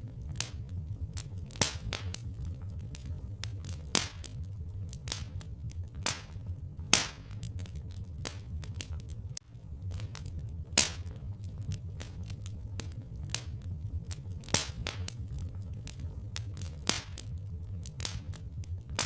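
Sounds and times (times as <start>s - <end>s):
log fire crackling: 0.0s - 19.0s
low rumble: 0.0s - 19.0s.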